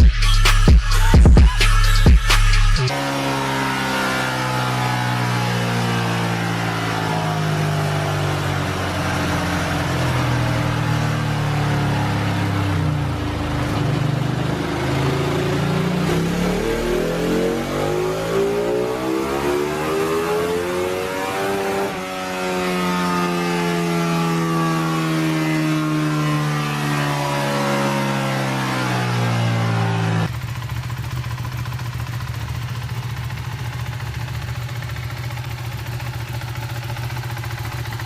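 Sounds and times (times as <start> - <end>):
motorbike engine revving: 0.0 - 38.0.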